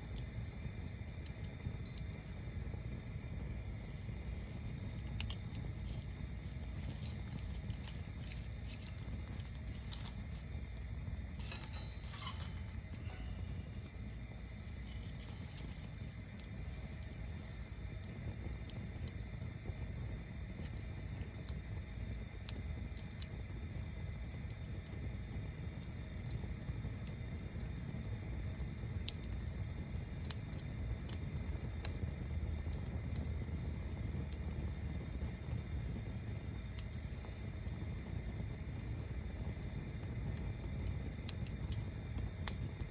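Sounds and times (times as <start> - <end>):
bonfire flame rumble: 0.0 - 42.9
fire hiss: 0.0 - 42.9
wood crackling and popping: 0.0 - 42.9.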